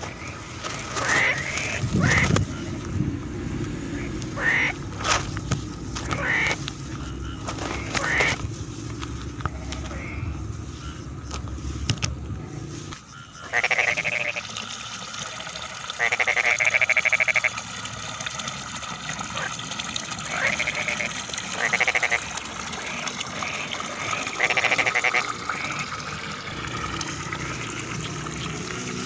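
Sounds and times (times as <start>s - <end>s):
frogs bleating calls: 0.0s - 14.9s, 15.9s - 17.7s, 19.2s - 29.0s
distant frog chorus: 0.0s - 29.0s.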